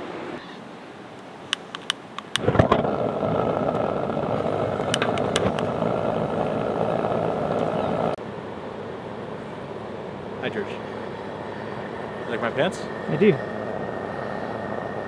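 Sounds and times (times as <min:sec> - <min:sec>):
vehicle engine and road noise: 0:01.3 - 0:15.0
sharp clicks: 0:01.5 - 0:08.2.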